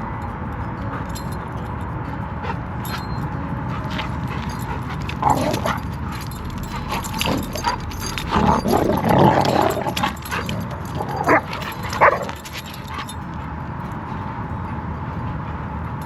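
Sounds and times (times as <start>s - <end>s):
dogs playing and yipping: 0.0s - 16.0s.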